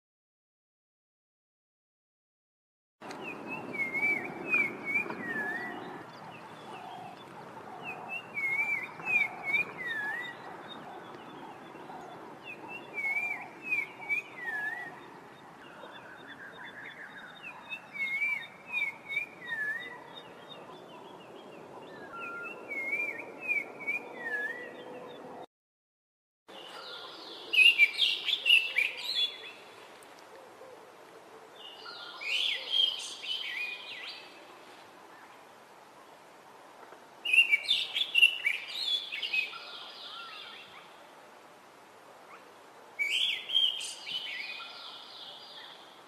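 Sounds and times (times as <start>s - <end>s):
bird whistling song: 3.2s - 6.0s, 7.8s - 10.5s, 12.5s - 15.0s, 16.2s - 20.2s, 21.9s - 24.9s, 27.5s - 29.4s, 37.2s - 40.6s, 43.0s - 44.9s.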